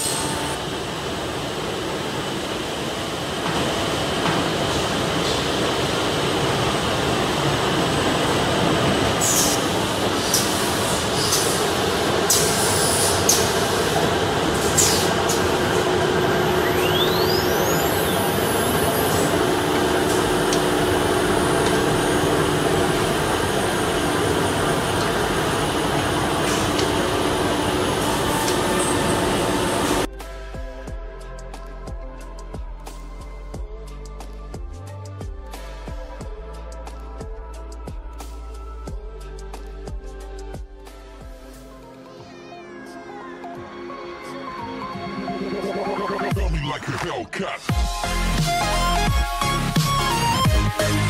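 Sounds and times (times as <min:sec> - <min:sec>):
cnc router running: 0:00.0 - 0:02.2, 0:03.4 - 0:30.1
gliding whistle: 0:16.5 - 0:18.7.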